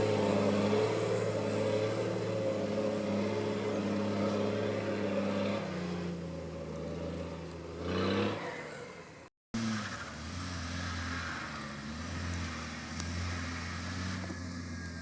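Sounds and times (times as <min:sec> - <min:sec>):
vehicle engine running: 0:09.6 - 0:15.0.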